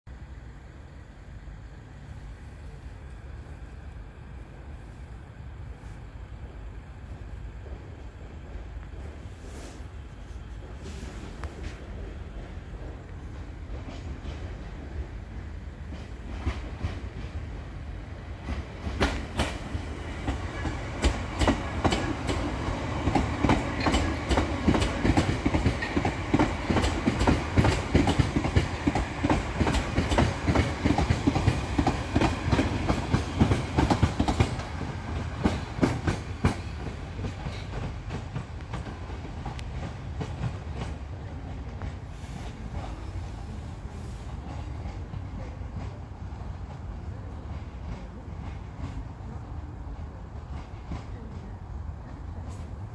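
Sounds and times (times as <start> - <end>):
electric train running past: 0.1 - 52.9
wheels clicking over rail joints: 18.3 - 42.1.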